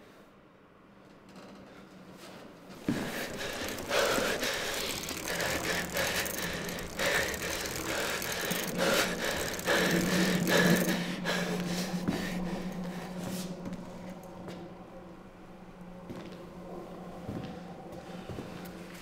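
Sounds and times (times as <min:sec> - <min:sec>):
steady low hum: 0:02.6 - 0:19.0
man panting hard: 0:02.9 - 0:13.6.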